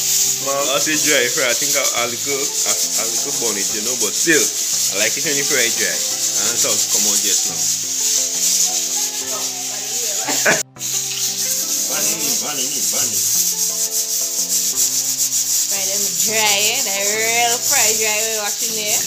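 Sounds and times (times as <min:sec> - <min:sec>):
fish sizzling in hot oil: 0:00.0 - 0:19.0.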